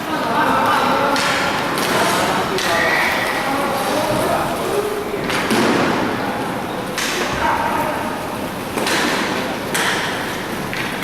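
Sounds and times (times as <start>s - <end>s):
noisy rink din: 0.0s - 11.0s
hockey sticks and puck knocking: 1.1s - 2.8s, 8.8s - 11.0s.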